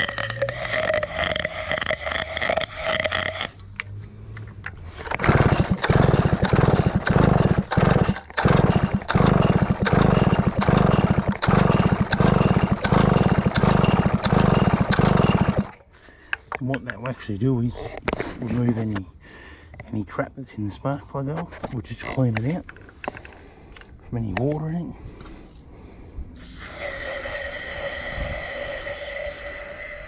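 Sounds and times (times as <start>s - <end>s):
chainsaw cranking chuffing rush: 0.0s - 3.6s, 5.0s - 15.8s.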